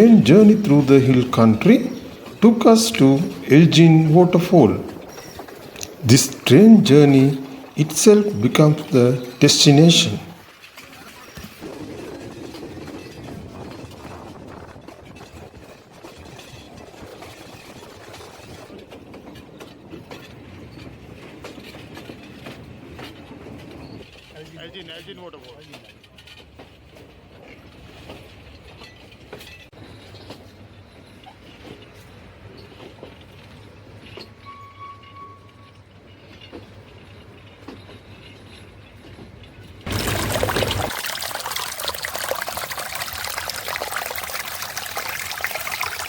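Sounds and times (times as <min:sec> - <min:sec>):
wheels clicking on rails: 0:00.0 - 0:34.4
train rumbling along track: 0:10.4 - 0:24.2.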